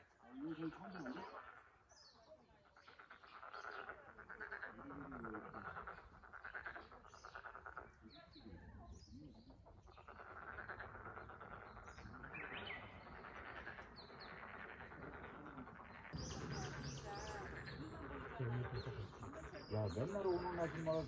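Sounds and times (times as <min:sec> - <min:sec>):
frogs calling: 0:00.0 - 0:02.0, 0:02.6 - 0:08.2, 0:09.4 - 0:21.0.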